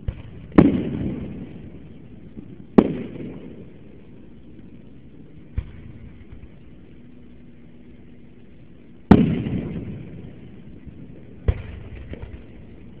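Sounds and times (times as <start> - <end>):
faint firework pops: 0.0 - 1.4, 2.4 - 3.6, 5.5 - 6.6, 11.4 - 12.6
firework shells booming: 0.0 - 7.1, 9.0 - 13.0.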